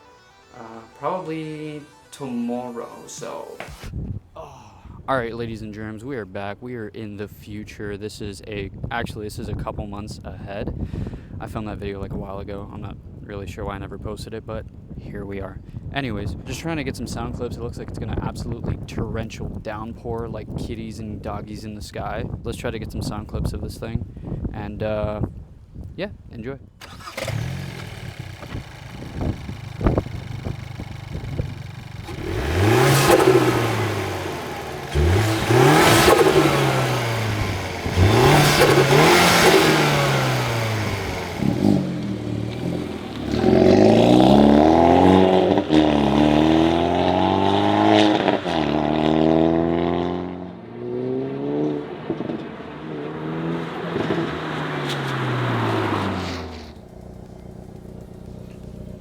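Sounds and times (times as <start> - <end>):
car engine revving: 26.8 - 59.0.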